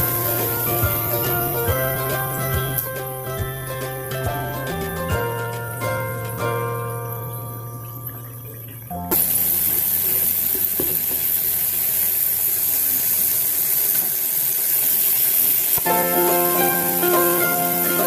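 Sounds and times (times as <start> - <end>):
background music: 0.0 - 9.2, 15.8 - 18.0
chips deep-frying in oil: 9.1 - 18.0.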